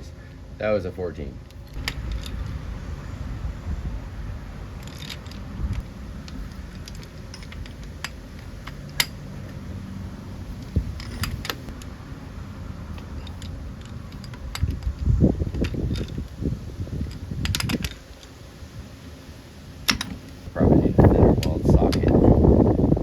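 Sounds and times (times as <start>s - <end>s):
hand tools clinking on metal: 4.8s - 11.9s.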